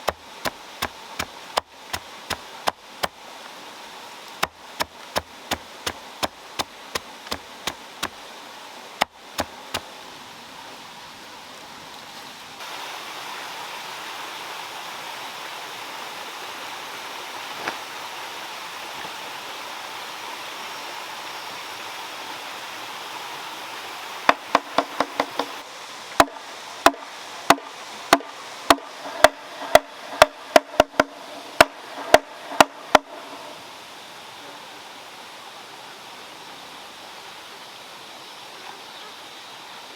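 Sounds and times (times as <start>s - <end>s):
flowing water: 0.0s - 39.9s
hand tool knocking: 24.3s - 25.6s, 26.2s - 33.2s.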